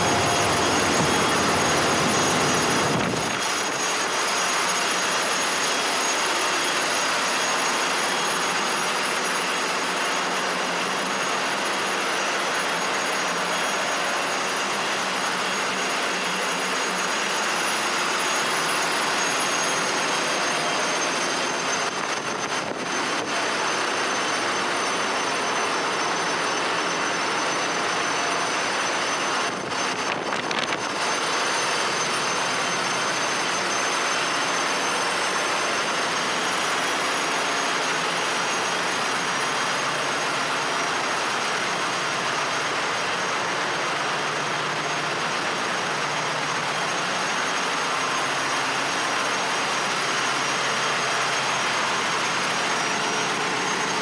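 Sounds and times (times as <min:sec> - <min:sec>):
engine room machinery roaring: 0:00.0 - 0:04.3
high-pitched machinery whines: 0:00.0 - 0:54.0.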